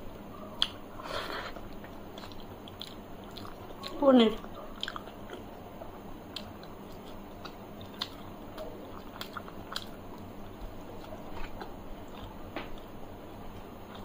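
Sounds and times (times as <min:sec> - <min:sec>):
person chewing: 0:00.5 - 0:14.0.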